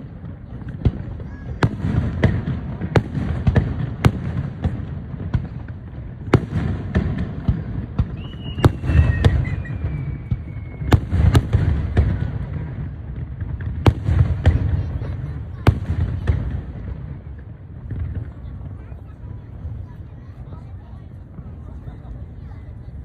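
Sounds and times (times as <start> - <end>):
fireworks bangs and cracks: 0.0 - 23.0
descending firework whistle: 8.0 - 12.0.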